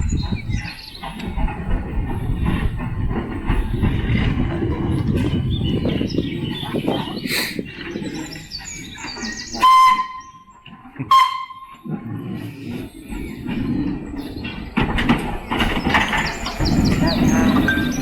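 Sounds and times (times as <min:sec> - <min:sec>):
locomotive whistle blasts: 0:09.5 - 0:11.9.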